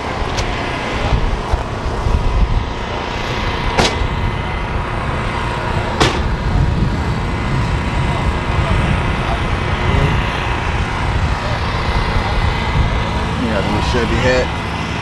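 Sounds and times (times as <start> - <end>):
car engines rumbling: 0.0 - 15.0
sharp clicks or knocks: 3.8 - 4.0.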